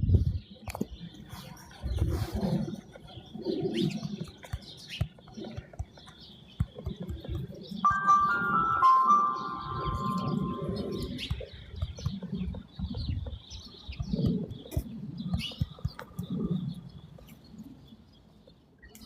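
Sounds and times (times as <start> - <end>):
soft music with held tones: 7.8 - 11.0
high bird chirps: 7.8 - 11.4.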